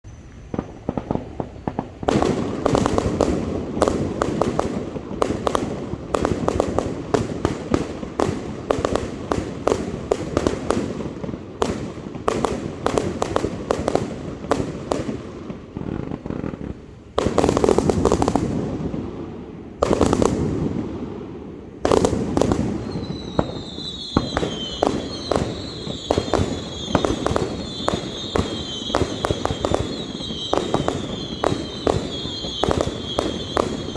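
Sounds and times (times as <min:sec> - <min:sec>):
falling firework whistle: 0:00.0 - 0:03.0, 0:22.6 - 0:33.9
fireworks launching and bursting: 0:00.1 - 0:33.9.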